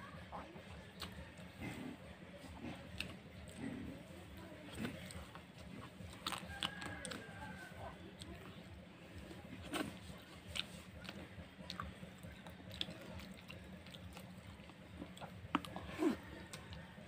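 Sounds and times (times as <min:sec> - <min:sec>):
person chewing: 0:04.7 - 0:07.6, 0:09.2 - 0:16.9.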